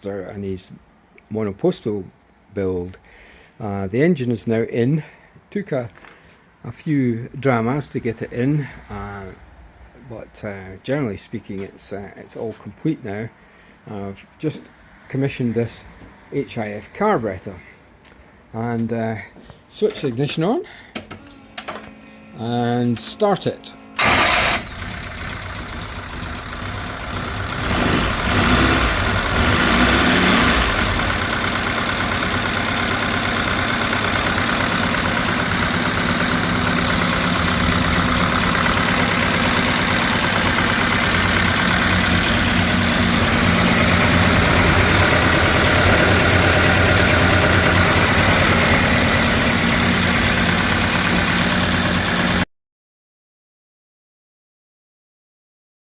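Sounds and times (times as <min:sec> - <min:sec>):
small engine running: 0:23.6 - 0:52.4.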